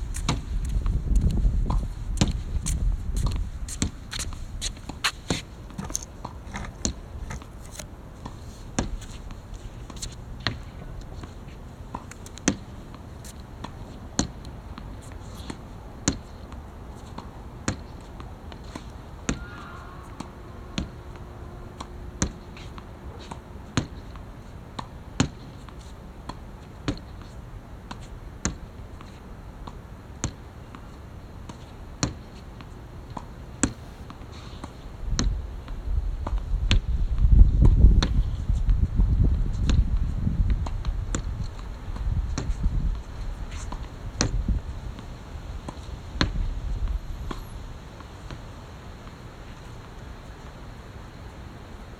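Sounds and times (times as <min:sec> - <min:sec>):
racket striking shuttlecock: 0:17.2 - 0:25.3.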